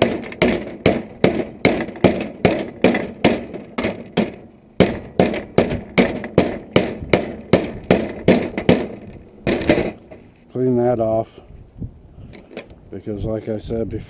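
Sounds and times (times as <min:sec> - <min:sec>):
hammer striking metal: 0:00.0 - 0:10.2.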